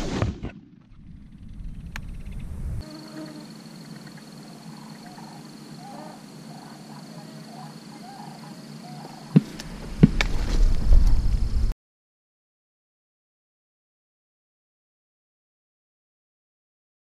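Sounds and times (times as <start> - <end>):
birds calling: 3.3 - 11.2.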